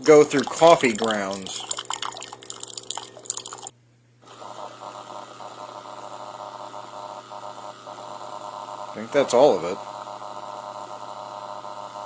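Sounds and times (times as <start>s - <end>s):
coffee sputtering and crackling: 0.0s - 3.7s
coffee maker pump hum: 0.0s - 12.0s.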